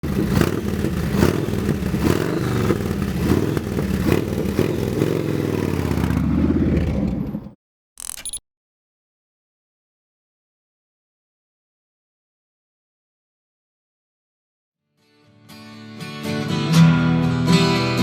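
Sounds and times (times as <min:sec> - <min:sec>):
motorcycle engines revving: 0:00.0 - 0:07.6.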